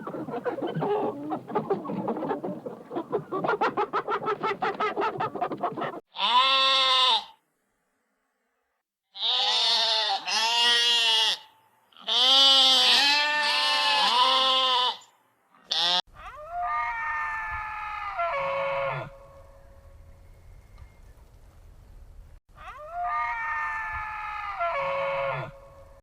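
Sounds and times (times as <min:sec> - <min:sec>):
goat bleating: 0:06.2 - 0:07.3, 0:09.2 - 0:15.0.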